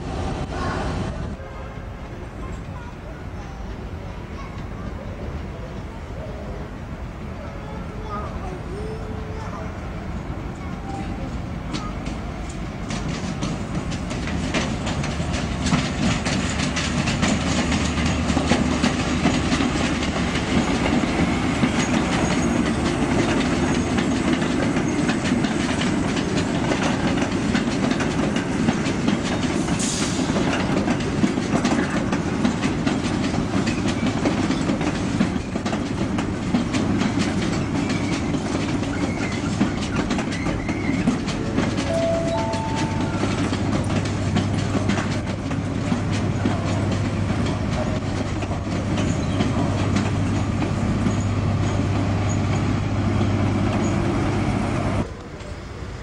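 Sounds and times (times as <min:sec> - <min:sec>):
train rumbling past: 0:00.0 - 0:56.0
train wheels clicking over rail joints: 0:10.6 - 0:55.6.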